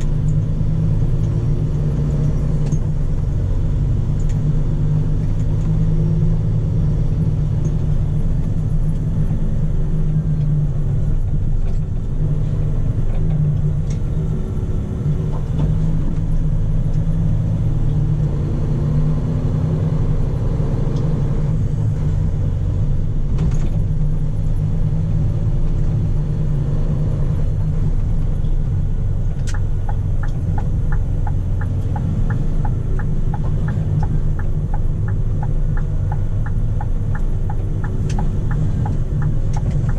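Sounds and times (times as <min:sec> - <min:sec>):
diesel truck engine rumbling: 0:00.0 - 0:39.9
regular ticking: 0:29.1 - 0:39.9.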